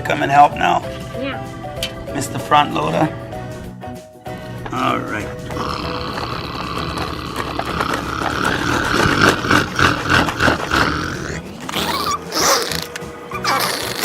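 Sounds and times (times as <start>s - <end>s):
child voicing engine growl: 5.6s - 14.0s.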